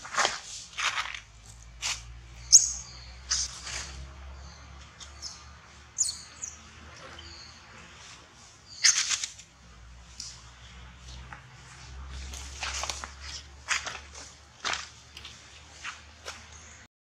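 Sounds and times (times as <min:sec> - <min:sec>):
birds chirping: 0:01.6 - 0:14.4.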